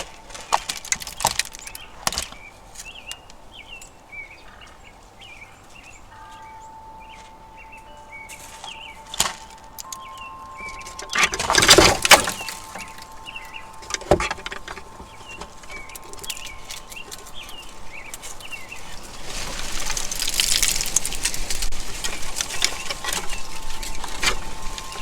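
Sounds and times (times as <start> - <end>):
small birds chirping: 0.0 - 25.0
faint high tone: 6.2 - 17.7.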